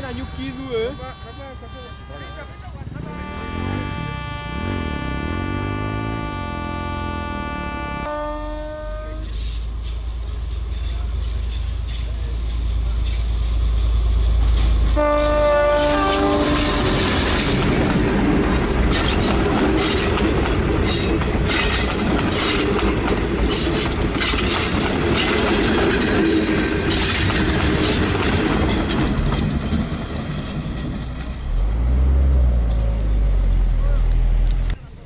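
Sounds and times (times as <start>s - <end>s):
train horn: 0.0s - 9.3s, 14.9s - 17.7s
train wheels rumbling on rail: 0.0s - 34.9s
high wheel squeals: 8.3s - 22.9s.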